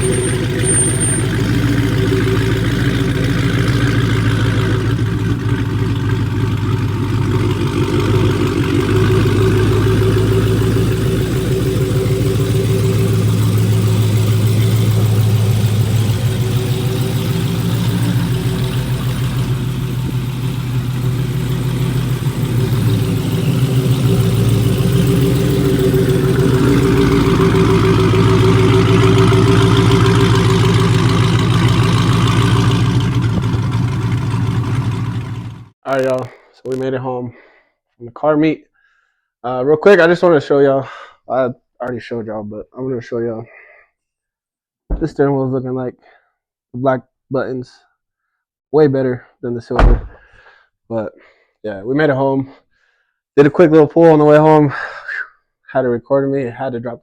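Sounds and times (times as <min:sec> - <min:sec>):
car engine and exhaust running: 0:00.0 - 0:35.8, 0:49.8 - 0:50.2.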